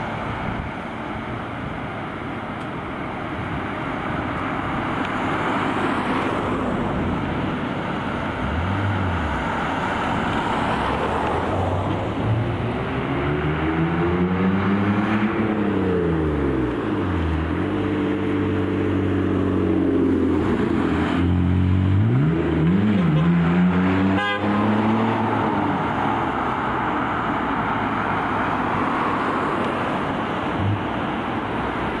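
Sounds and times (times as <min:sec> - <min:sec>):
road and tyre noise: 0:00.0 - 0:32.0.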